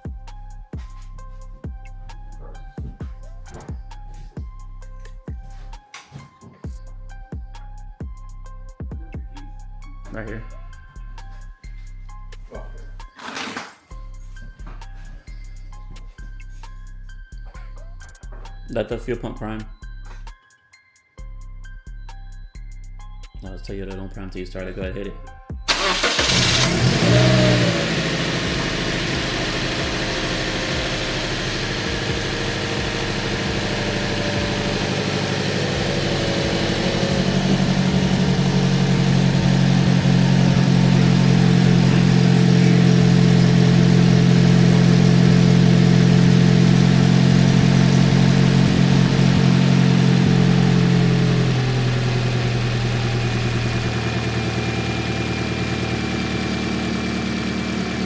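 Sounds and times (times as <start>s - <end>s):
car engine starting and idling: 25.7s - 58.0s.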